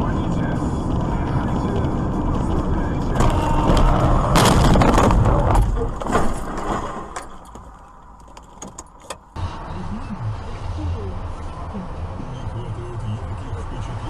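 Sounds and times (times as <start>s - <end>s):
car running on road: 0.0s - 14.0s
loud crunching car crash: 3.1s - 8.0s.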